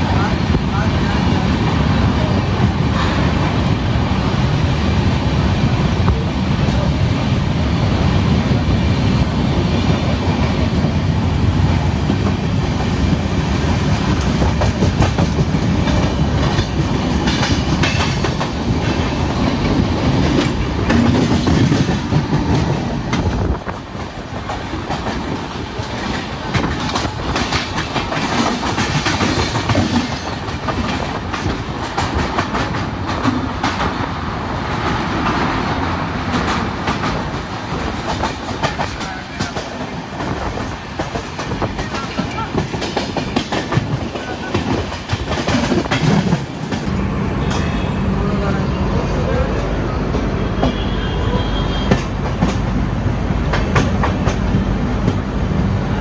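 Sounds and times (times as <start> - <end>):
train deep rumble: 0.0 - 56.0
wheels clacking over rail joints: 14.0 - 34.1, 34.8 - 47.8.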